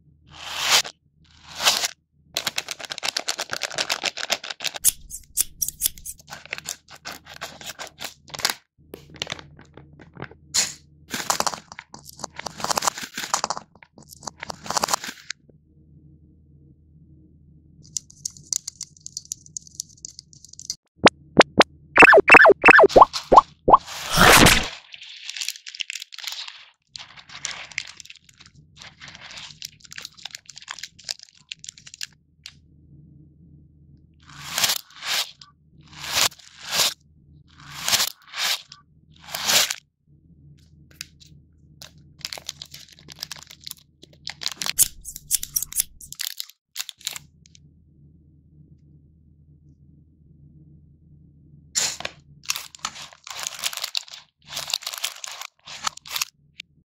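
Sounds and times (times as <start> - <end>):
plastic pouch crinkling and tearing: 2.4 - 8.6, 24.0 - 32.1, 42.2 - 43.7, 44.3 - 47.2, 52.5 - 56.3.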